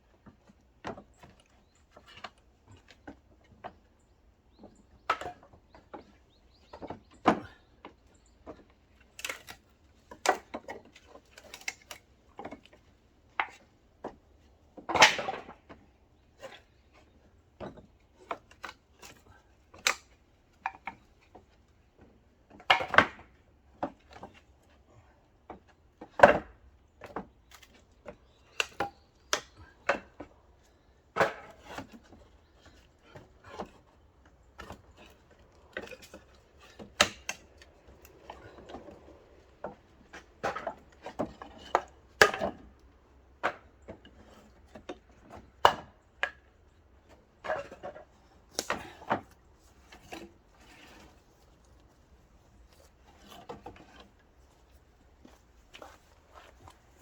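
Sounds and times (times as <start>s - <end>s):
axe splitting firewood: 14.8s - 15.8s, 31.2s - 33.8s, 34.6s - 42.8s, 47.1s - 51.2s.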